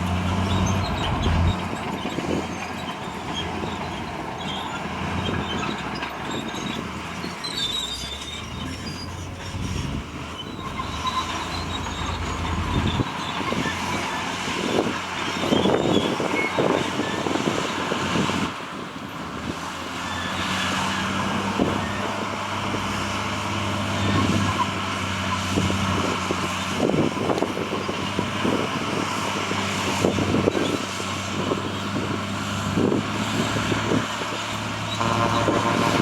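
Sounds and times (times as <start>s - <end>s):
diesel earthmoving machinery running: 0.0s - 36.0s
horn sounding: 34.9s - 36.0s.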